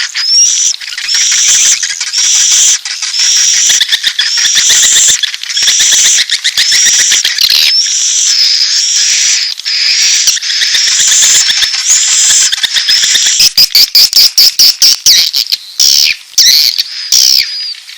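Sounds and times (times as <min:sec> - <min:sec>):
swiftlet chirping trills: 0:00.0 - 0:17.8.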